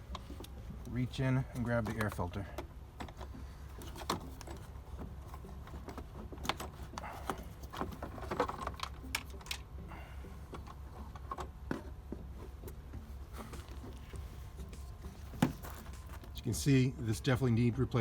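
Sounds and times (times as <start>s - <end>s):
air filter clicks and rustling: 0.0s - 16.6s
steady low hum: 0.0s - 18.0s.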